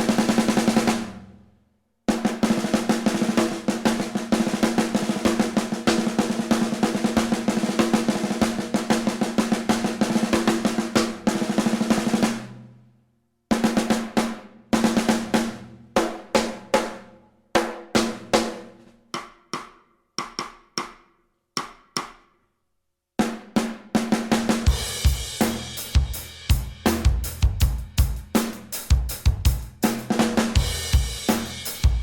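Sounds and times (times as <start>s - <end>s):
bass drum: 24.6s - 32.0s.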